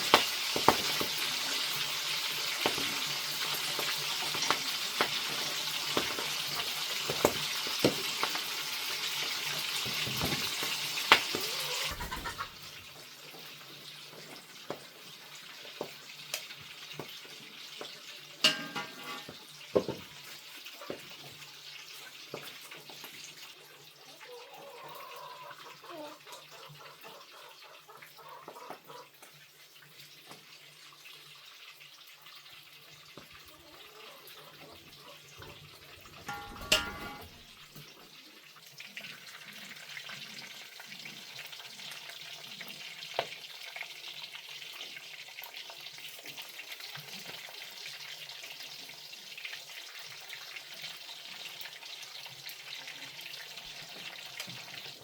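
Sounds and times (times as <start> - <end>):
food sizzling in a pan: 0.0 - 27.1, 27.9 - 55.0
knocks and clinks: 18.5 - 19.3, 36.2 - 37.5.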